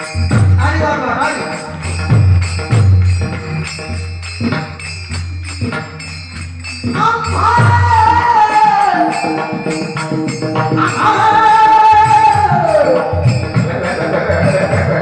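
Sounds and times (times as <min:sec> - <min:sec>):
jingling hand percussion: 0:00.0 - 0:15.0.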